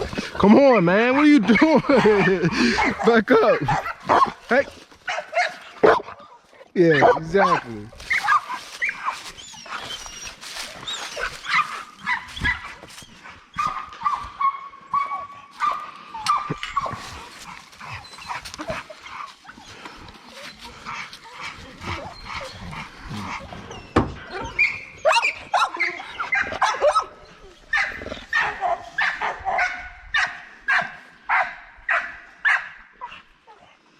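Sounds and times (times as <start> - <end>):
dog whining: 6.9 - 12.8, 21.6 - 28.5.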